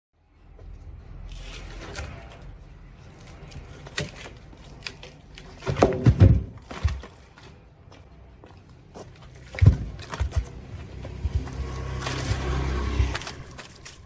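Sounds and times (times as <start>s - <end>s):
heavy thuds: 5.6s - 7.3s, 9.4s - 12.2s.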